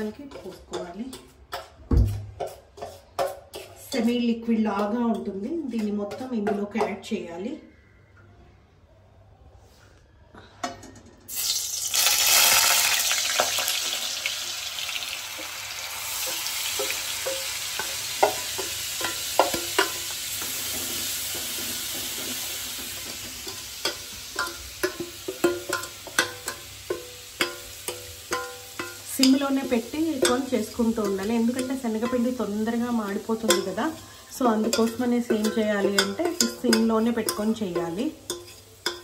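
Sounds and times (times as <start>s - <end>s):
spatula knocking against pan: 0.3s - 3.8s, 34.5s - 39.0s
batter sizzling in hot oil: 11.3s - 39.0s.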